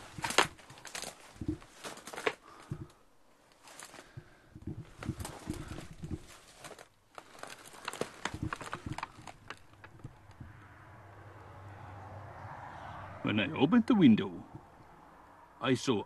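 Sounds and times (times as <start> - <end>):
footsteps crunching on debris: 0.0 - 10.6.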